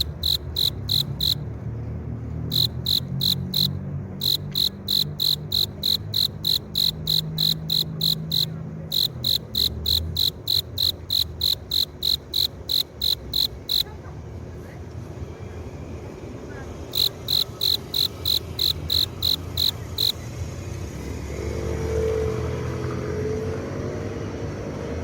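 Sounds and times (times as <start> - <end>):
cricket chirping: 0.0 - 1.4, 2.5 - 13.9, 16.9 - 20.2.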